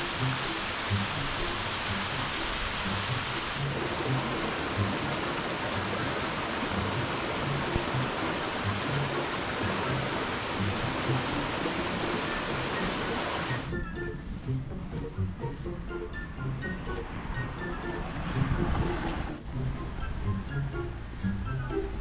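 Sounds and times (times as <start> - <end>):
background music: 0.0 - 22.0
stream rushing: 0.0 - 22.0.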